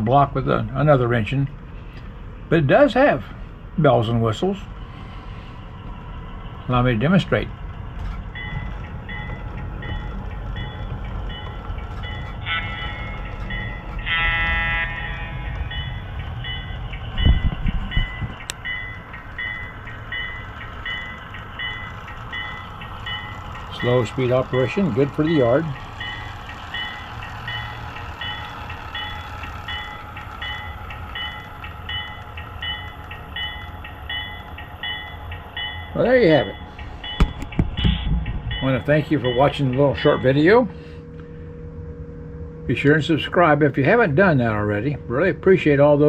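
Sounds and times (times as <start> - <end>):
model train engine rumble: 0.0 - 46.0
train bell ringing: 6.7 - 46.0
train horn blasts: 12.4 - 13.2, 14.0 - 15.7.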